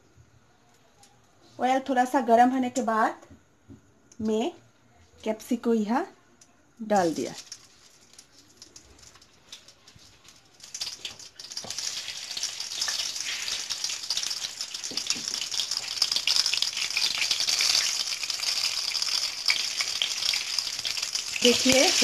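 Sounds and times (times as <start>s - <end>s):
vegetables frying in hot oil: 6.9s - 22.0s.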